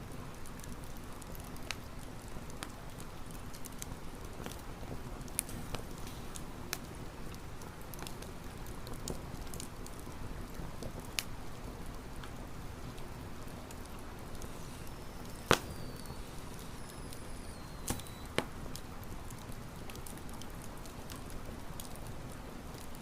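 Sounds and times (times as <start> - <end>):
campfire crackling: 0.0 - 23.0
high whistle sliding down: 14.4 - 18.4.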